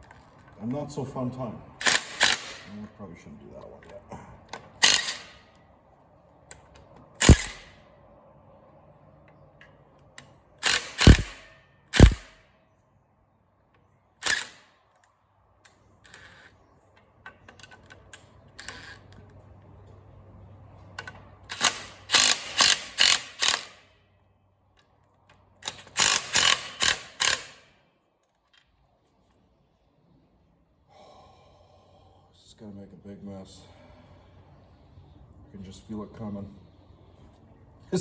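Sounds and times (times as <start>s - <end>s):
socket ratchet clicking: 1.8s - 2.7s, 6.5s - 7.7s, 10.6s - 12.3s, 14.2s - 15.0s, 21.0s - 23.8s, 24.8s - 27.6s
sharp metal knocks: 10.7s - 12.4s.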